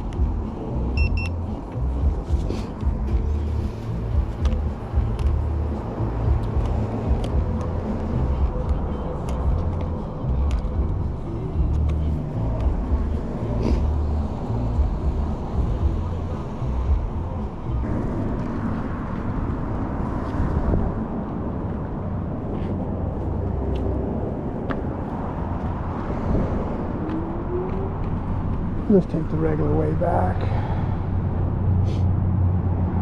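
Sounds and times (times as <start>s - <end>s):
wind buffeting microphone: 14.4s - 33.0s.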